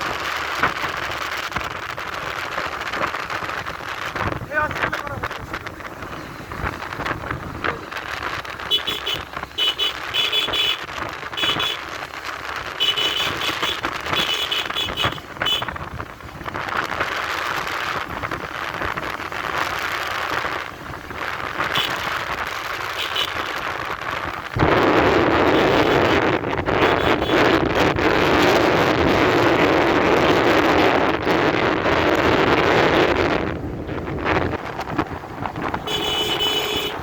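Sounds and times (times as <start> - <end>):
wind and road noise: 0.0 - 37.0
vehicle horn beeping: 8.7 - 11.8, 12.8 - 15.8, 21.7 - 22.0, 23.0 - 23.5, 25.5 - 26.2, 26.8 - 27.9, 35.8 - 37.0.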